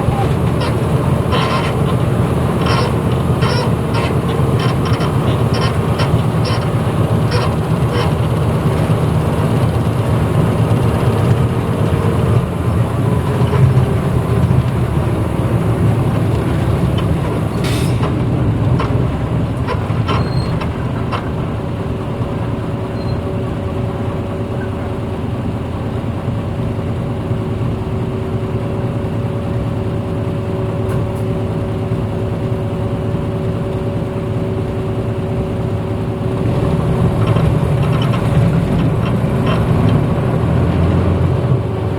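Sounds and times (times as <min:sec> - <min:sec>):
bus engine and road noise: 0:00.0 - 0:41.9.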